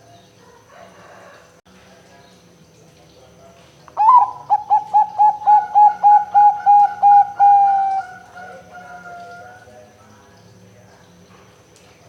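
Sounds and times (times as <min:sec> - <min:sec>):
dove cooing: 0:04.0 - 0:09.7.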